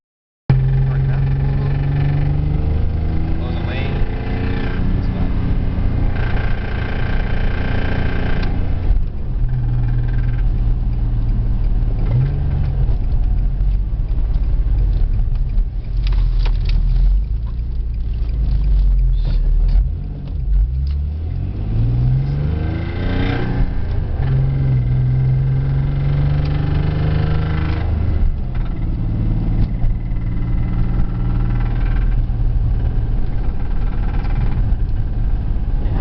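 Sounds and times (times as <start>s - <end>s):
engine revving: 0.5s - 36.0s
car engine knocking: 5.9s - 20.8s, 26.2s - 35.8s.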